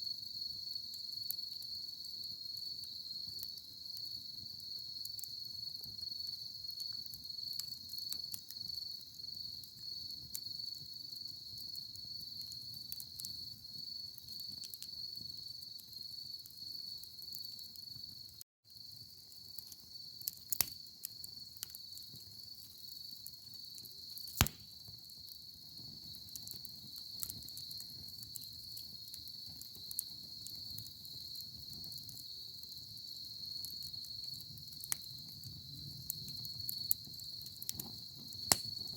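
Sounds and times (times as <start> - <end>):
crickets trilling: 0.0 - 38.9
wood fire crackling: 0.2 - 38.9
sharp fire pop: 24.3 - 24.7, 37.8 - 38.9.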